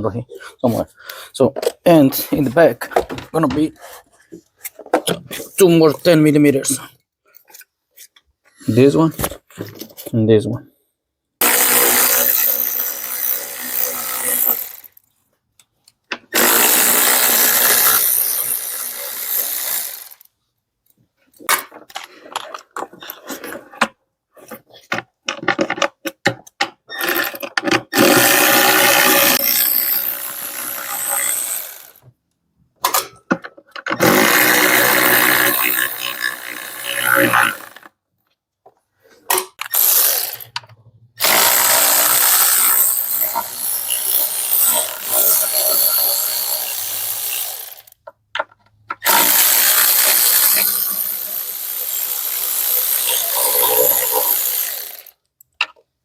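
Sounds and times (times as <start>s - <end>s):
power tool spinning bolts: 11.4s - 15.0s, 16.3s - 20.3s, 26.9s - 32.0s, 33.9s - 37.9s, 39.6s - 40.6s, 41.2s - 48.0s, 49.0s - 55.2s.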